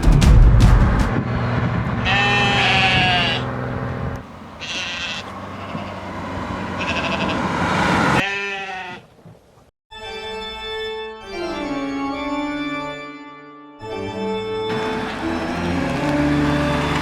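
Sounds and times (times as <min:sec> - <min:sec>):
sheep bleating: 0:02.0 - 0:03.5, 0:04.6 - 0:07.4, 0:08.2 - 0:09.0.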